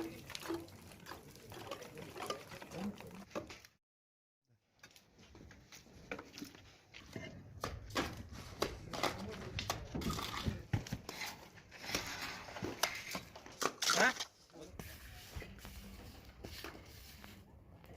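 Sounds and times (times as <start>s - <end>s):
hand tools tapping and scraping: 4.8s - 17.9s.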